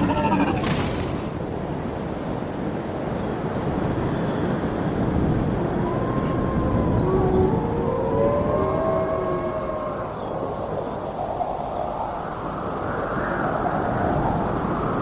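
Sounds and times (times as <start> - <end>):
rising wailing tone: 5.7 - 10.3.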